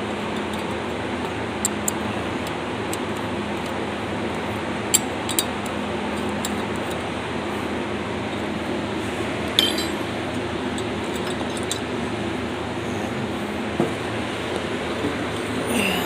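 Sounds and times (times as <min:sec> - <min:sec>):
background hum: 0:00.0 - 0:16.0
metal tools clinking: 0:09.5 - 0:10.1, 0:10.7 - 0:11.9.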